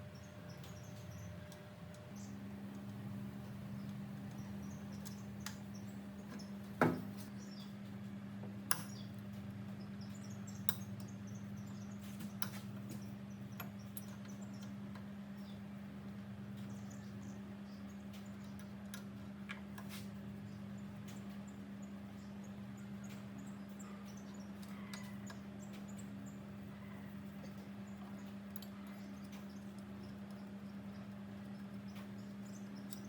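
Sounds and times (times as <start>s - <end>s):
steady low hum: 0.0s - 33.0s
sharp knocks: 6.8s - 7.1s.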